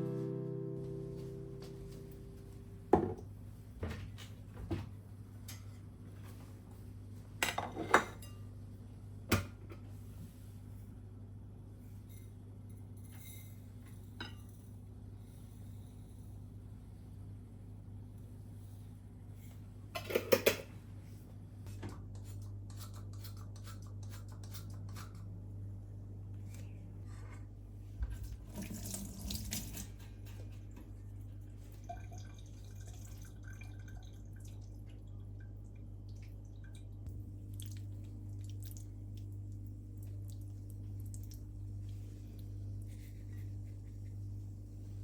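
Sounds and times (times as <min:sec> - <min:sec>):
steady low hum: 0:00.0 - 0:07.3, 0:34.4 - 0:45.0
water running from a tap: 0:28.4 - 0:29.9.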